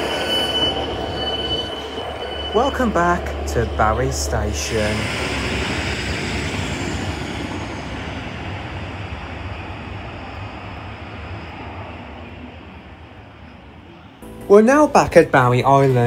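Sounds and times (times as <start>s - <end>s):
faint high whine: 0.0s - 15.8s
diesel train pulling away: 0.0s - 16.0s.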